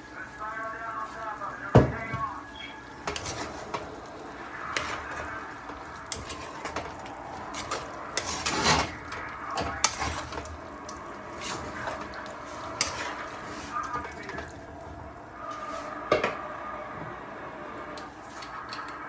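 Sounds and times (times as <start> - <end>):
utensil scraping a pan: 3.0 - 14.6.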